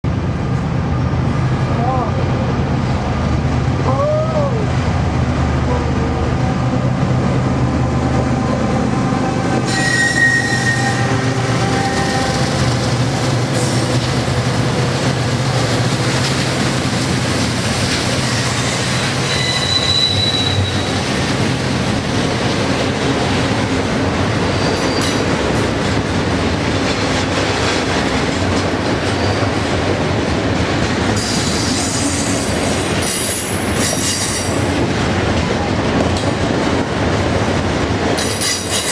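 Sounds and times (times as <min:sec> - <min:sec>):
freight train clattering on rails: 0:04.8 - 0:38.9
train wheel squeals: 0:09.6 - 0:12.8, 0:18.2 - 0:21.1, 0:24.5 - 0:25.3, 0:31.2 - 0:34.6, 0:38.2 - 0:38.9.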